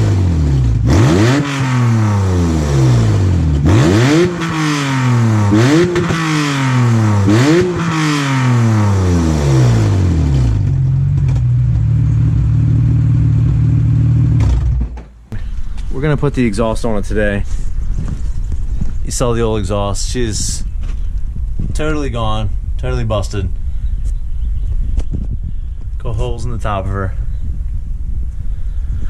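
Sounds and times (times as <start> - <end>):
car engine revving and idling: 0.0 - 15.5.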